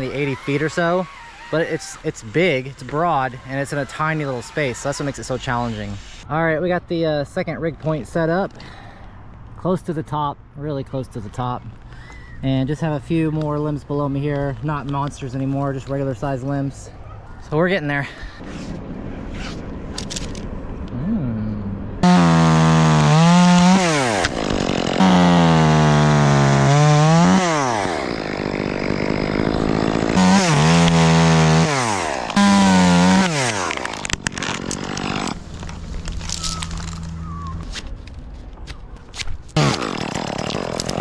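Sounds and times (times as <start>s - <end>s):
chainsaw revving and idling: 0.0s - 6.2s, 22.0s - 35.7s, 39.6s - 41.0s.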